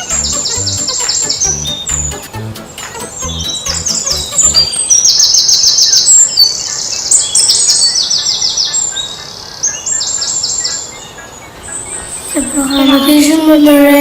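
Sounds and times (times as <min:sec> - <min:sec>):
bird trilling: 0:00.0 - 0:08.8.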